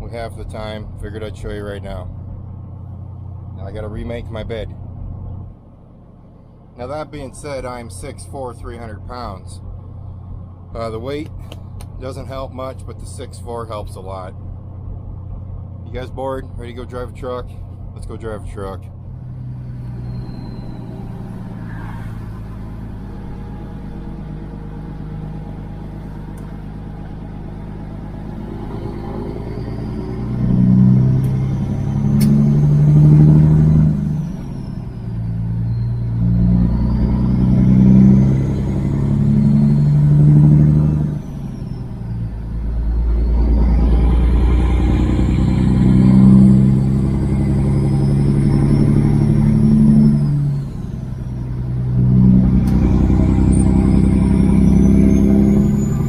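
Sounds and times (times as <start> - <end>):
truck diesel engine: 0.0 - 56.0
faint high whistle: 19.8 - 22.5, 34.1 - 37.4.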